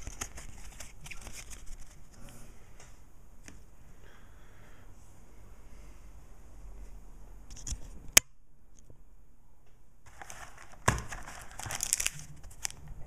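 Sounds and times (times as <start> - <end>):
foil wrapper crinkling and tearing: 10.1 - 12.8.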